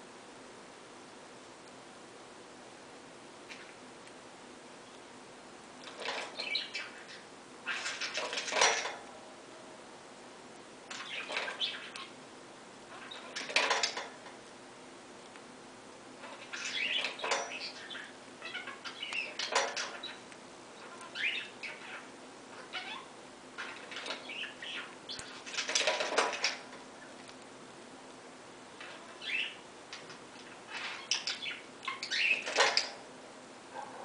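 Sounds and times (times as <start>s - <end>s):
cockatiel chirping: 20.8s - 23.1s.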